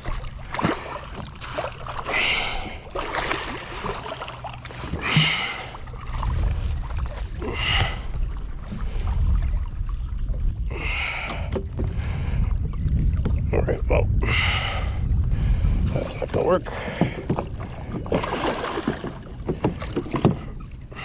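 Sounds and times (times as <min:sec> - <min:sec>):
wind rumbling on microphone: 0:04.8 - 0:21.0.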